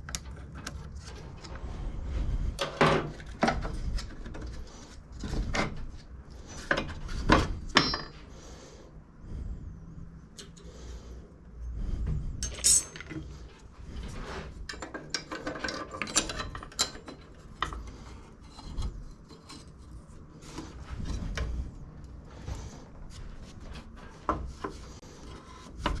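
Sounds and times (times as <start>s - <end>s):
metal parts clinking and scraping: 6.5s - 8.3s, 12.4s - 20.1s.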